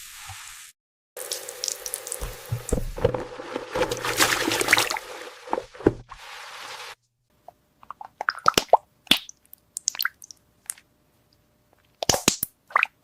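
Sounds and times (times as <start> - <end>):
toy tap water splashing: 1.2 - 6.1
plastic knocks and clatters: 2.2 - 4.8, 5.5 - 6.1.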